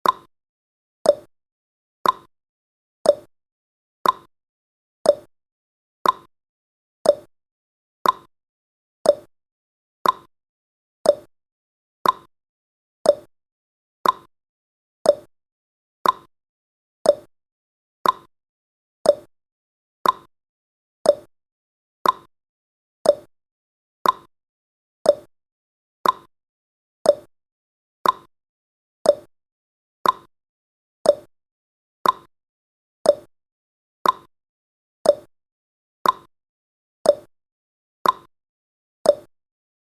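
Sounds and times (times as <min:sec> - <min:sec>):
clock tick-tock: 0:00.0 - 0:00.3, 0:01.0 - 0:01.3, 0:02.0 - 0:02.3, 0:03.0 - 0:03.3, 0:04.0 - 0:04.3, 0:05.0 - 0:05.3, 0:06.0 - 0:06.3, 0:07.0 - 0:07.3, 0:08.0 - 0:08.3, 0:09.0 - 0:09.3, 0:10.0 - 0:10.3, 0:11.0 - 0:11.3, 0:12.0 - 0:12.3, 0:13.0 - 0:13.3, 0:14.0 - 0:14.3, 0:15.0 - 0:15.3, 0:16.0 - 0:16.3, 0:17.0 - 0:17.3, 0:18.0 - 0:18.3, 0:19.0 - 0:19.3, 0:20.0 - 0:20.3, 0:21.0 - 0:21.3, 0:22.0 - 0:22.3, 0:23.0 - 0:23.3, 0:24.0 - 0:24.3, 0:25.0 - 0:25.3, 0:26.0 - 0:26.3, 0:27.0 - 0:27.3, 0:28.0 - 0:28.3, 0:29.0 - 0:29.3, 0:30.0 - 0:30.3, 0:31.0 - 0:31.3, 0:32.0 - 0:32.3, 0:33.0 - 0:33.3, 0:34.0 - 0:34.3, 0:35.0 - 0:35.3, 0:36.0 - 0:36.3, 0:37.0 - 0:37.3, 0:38.0 - 0:38.3, 0:39.0 - 0:39.4.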